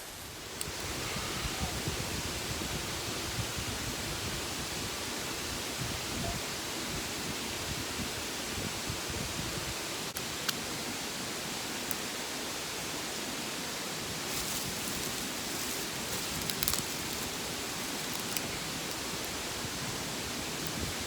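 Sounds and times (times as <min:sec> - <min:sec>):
faint clicks and rustles: 0:14.2 - 0:19.5.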